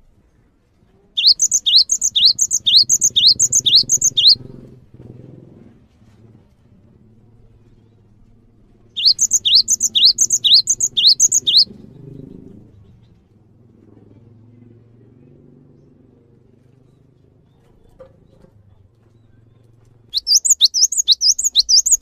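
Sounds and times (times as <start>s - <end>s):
songbird singing: 1.2s - 4.7s, 9.0s - 12.7s, 20.1s - 22.0s.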